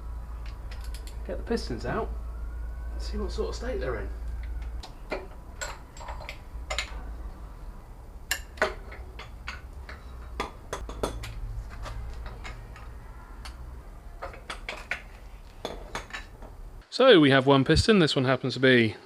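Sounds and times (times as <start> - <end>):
steady low hum: 0.0 - 16.8
hand tools clicking on metal: 4.3 - 7.0, 8.3 - 13.6, 14.2 - 16.6.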